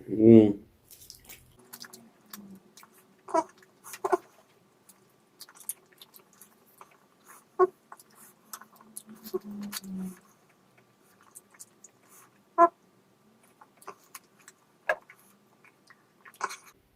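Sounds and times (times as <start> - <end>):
wet chewing and smacking: 0.8 - 16.8.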